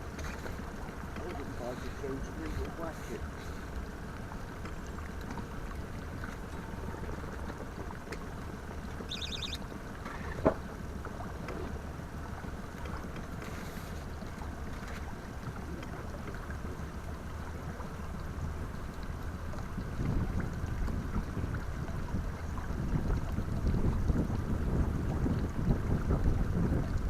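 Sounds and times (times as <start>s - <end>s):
water noise: 0.0s - 27.0s
wind: 0.0s - 27.0s
high warbling chirp: 9.1s - 9.6s.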